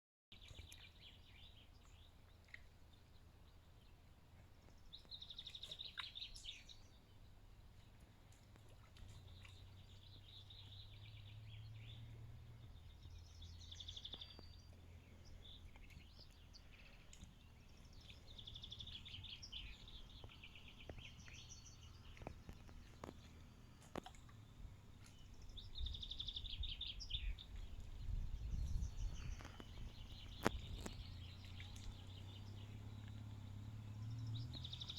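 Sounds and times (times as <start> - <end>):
songbirds singing: 0.3 - 34.9
low rumble: 9.0 - 34.9.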